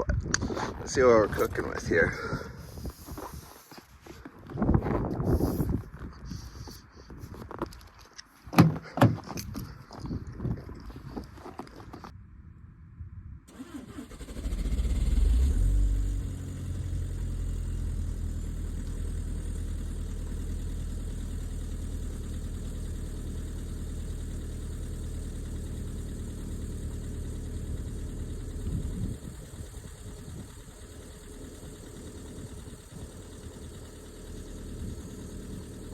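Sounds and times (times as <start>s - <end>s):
diesel engine starting and idling: 0.6s - 3.6s, 13.5s - 35.9s.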